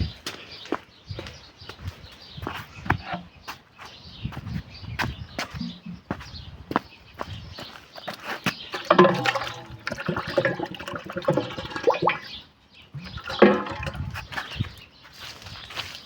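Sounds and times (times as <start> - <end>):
water pouring and splashing: 8.7 - 14.7.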